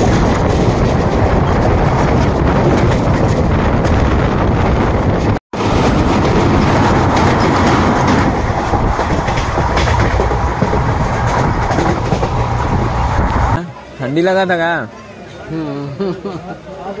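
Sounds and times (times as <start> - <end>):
train wheels clattering on rails: 0.0 - 13.6.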